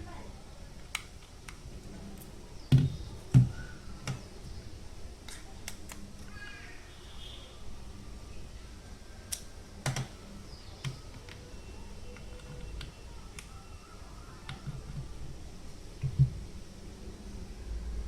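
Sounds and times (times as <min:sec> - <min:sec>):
clicks and knocks of objects handled: 0:00.8 - 0:04.3, 0:05.2 - 0:06.3, 0:09.3 - 0:10.2.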